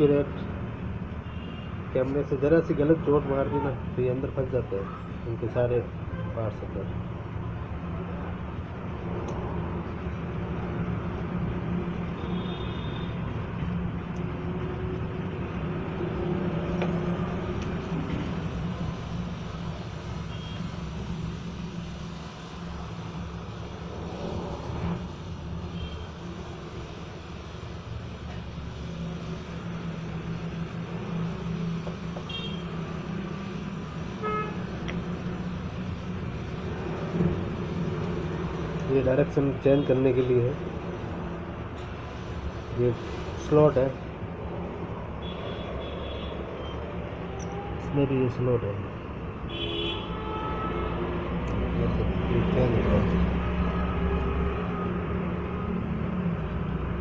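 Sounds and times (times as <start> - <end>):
road traffic noise: 0.0 - 57.0
vehicle horn toots: 32.3 - 32.7, 34.2 - 34.6, 49.5 - 51.0.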